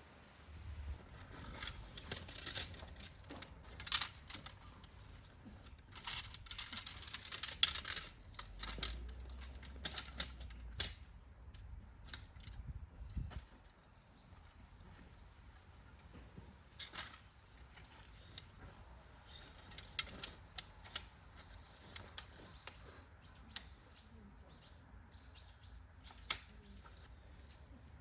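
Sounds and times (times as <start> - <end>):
metallic clinks of camp gear: 1.2 - 11.0, 12.0 - 14.0, 15.7 - 28.0.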